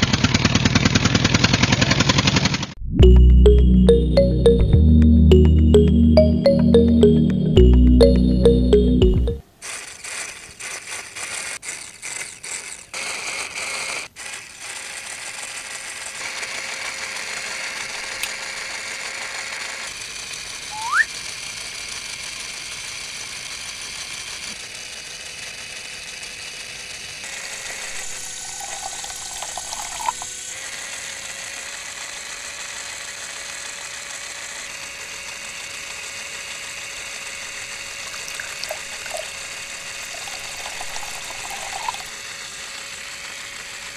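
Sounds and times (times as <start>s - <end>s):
short rising whistle: 20.7s - 21.1s.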